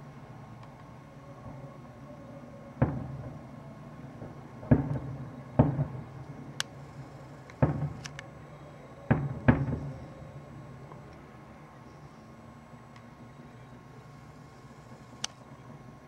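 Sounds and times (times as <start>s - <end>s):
distant fireworks booming: 2.4s - 11.4s
faint sharp high clicks: 15.2s - 15.5s.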